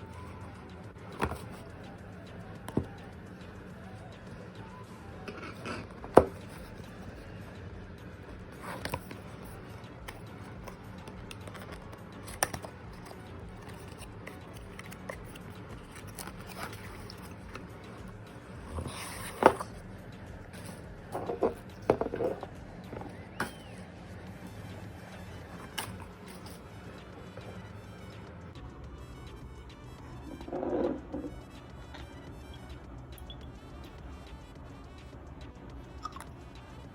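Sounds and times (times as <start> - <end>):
steady low hum: 0.0 - 36.9
perfume box and bottle handled: 1.0 - 1.9, 2.6 - 3.1, 5.1 - 7.3, 8.2 - 23.8, 25.4 - 26.7, 30.3 - 31.4.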